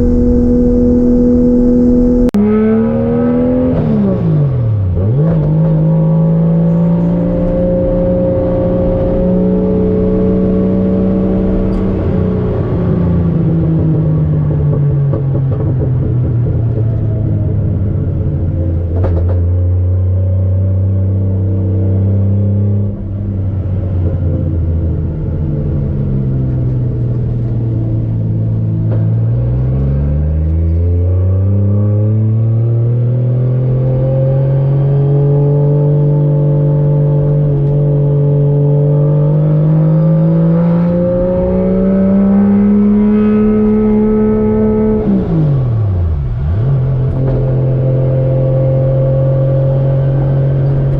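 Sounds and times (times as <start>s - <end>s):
turbocharged car engine running: 0.0s - 19.4s.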